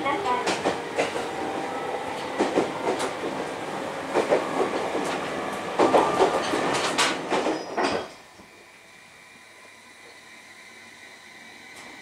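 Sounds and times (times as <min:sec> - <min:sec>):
train rumbling: 0:00.0 - 0:12.0
wheels clacking over rails: 0:02.2 - 0:08.1.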